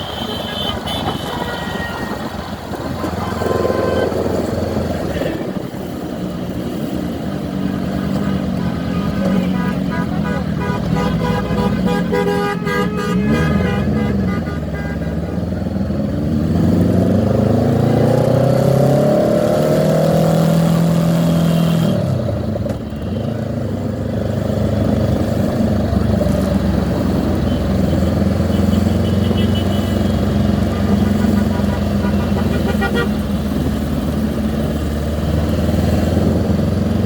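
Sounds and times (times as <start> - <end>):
vehicle horns honking: 0.0 - 4.6, 8.2 - 15.8, 27.3 - 33.4
motorcycle engines running: 0.0 - 37.0
motorcycle engine accelerating: 15.5 - 37.0.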